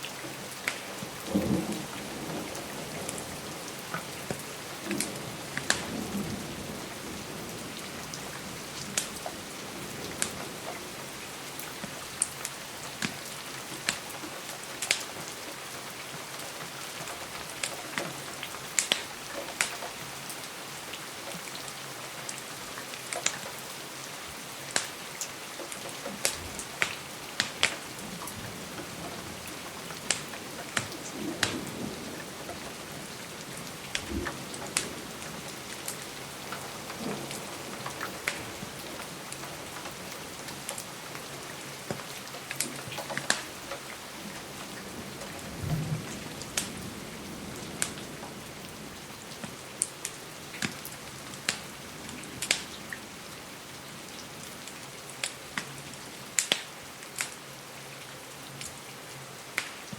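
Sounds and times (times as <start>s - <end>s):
steady rain hiss: 0.0s - 59.9s
sharp pops and crackles: 4.3s - 6.0s, 13.8s - 14.1s, 18.7s - 19.9s, 25.7s - 27.8s, 35.8s - 38.6s, 41.9s - 43.9s, 46.6s - 46.8s, 51.4s - 51.6s, 52.4s - 52.7s, 56.4s - 57.4s, 59.6s - 59.9s.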